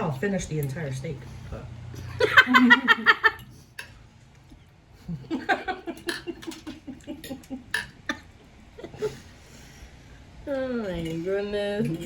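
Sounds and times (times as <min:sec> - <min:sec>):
woman laughing breathily: 0:08.8 - 0:09.6.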